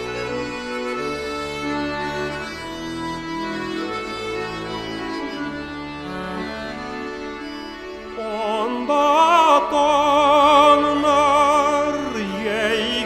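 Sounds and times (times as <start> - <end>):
solo singer with heavy vibrato: 8.1 - 13.0.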